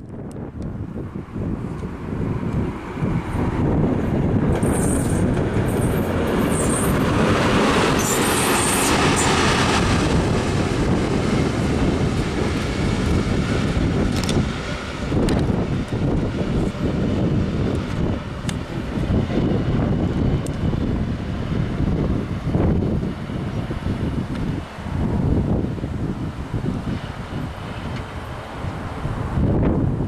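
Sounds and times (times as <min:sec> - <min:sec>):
freight train rumbling: 0:00.0 - 0:30.0
high wheel squeals: 0:04.6 - 0:07.0, 0:07.9 - 0:09.4.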